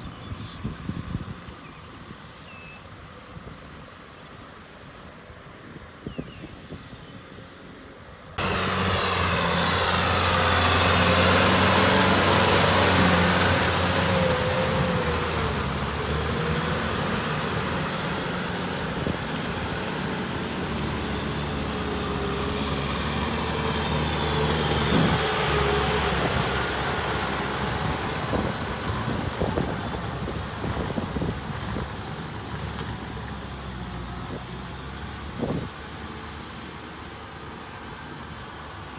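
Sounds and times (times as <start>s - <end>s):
rushing noise: 8.4s - 30.8s
tractor engine under load: 8.4s - 38.9s.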